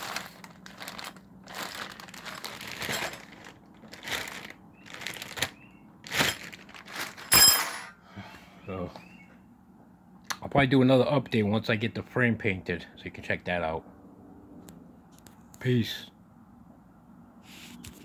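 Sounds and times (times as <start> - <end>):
packaging crinkling and rustling: 0.0 - 7.3
sharp metallic clink: 7.3 - 8.0.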